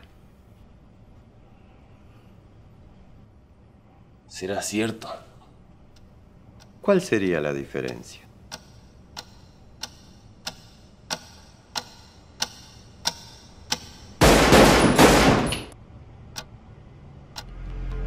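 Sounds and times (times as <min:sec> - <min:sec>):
clock ticking: 0:06.6 - 0:14.0
revolver gunshot: 0:14.2 - 0:15.8.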